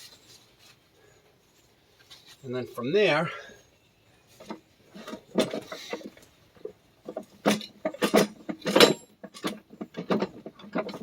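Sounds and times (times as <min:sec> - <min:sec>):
metal parts clinking and scraping: 0:07.1 - 0:11.0.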